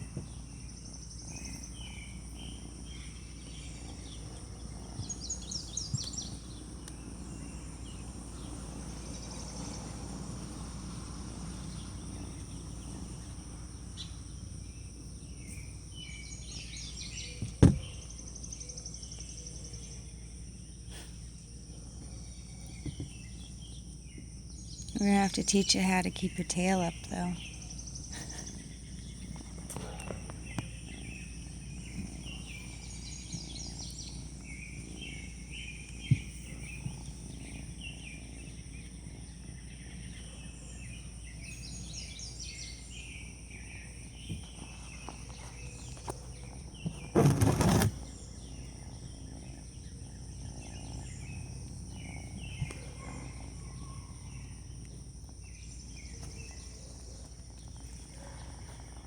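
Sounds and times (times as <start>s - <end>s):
birds chirping: 0.0s - 59.0s
high-pitched insect hum: 0.0s - 59.0s
loud rustle: 44.4s - 48.2s.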